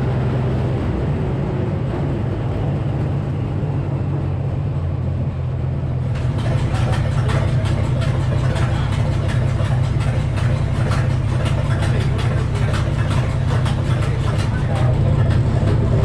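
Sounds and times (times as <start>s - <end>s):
sawmill engine running: 4.0s - 16.0s
circular saw rasping through log: 6.1s - 16.0s.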